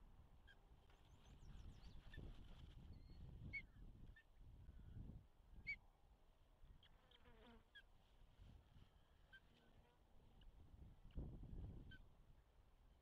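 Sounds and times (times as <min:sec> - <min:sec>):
wind rumble on microphone: 0:01.2 - 0:05.7, 0:10.6 - 0:12.0.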